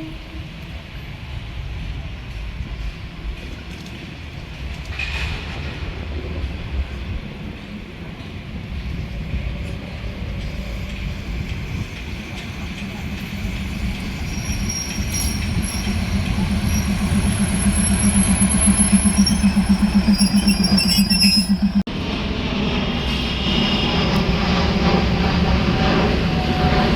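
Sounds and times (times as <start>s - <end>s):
train wheels rumbling: 0.0s - 26.9s
pulsing hum: 10.9s - 21.9s
high squealing tones: 12.0s - 21.9s.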